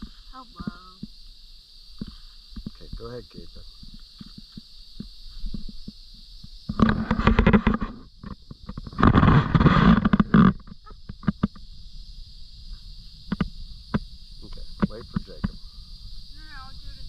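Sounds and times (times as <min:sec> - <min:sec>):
insects chirring: 0:00.0 - 0:17.0
firework crackling and popping: 0:06.7 - 0:11.7.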